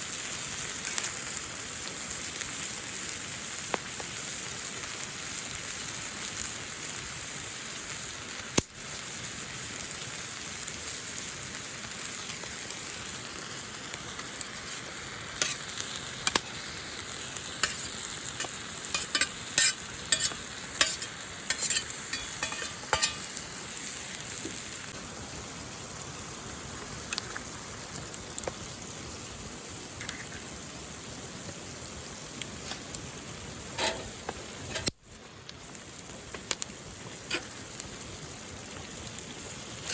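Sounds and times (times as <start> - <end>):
food sizzling in a pan: 0.0 - 39.9
spatula scraping a pan: 15.4 - 16.6, 17.4 - 23.4, 33.7 - 35.0, 37.3 - 37.6.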